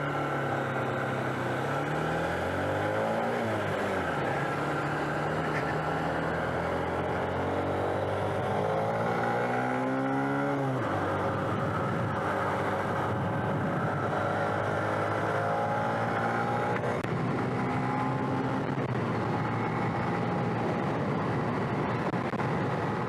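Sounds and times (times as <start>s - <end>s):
road noise: 0.0s - 23.0s
wind rush on microphone: 10.7s - 15.3s, 16.8s - 23.0s.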